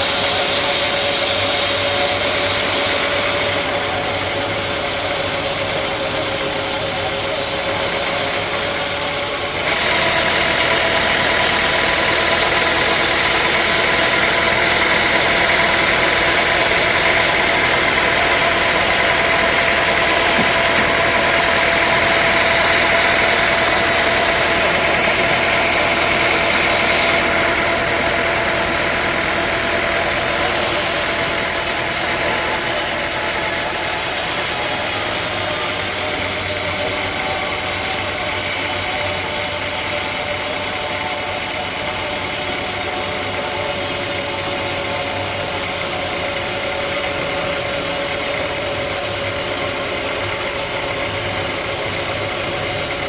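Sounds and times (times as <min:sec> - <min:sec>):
saw cutting noise: 0:00.0 - 0:53.0
sawmill machinery running: 0:00.0 - 0:53.0.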